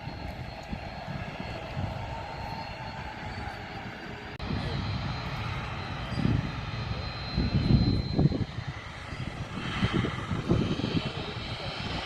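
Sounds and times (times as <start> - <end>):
airplane engine hum: 0.0 - 12.0.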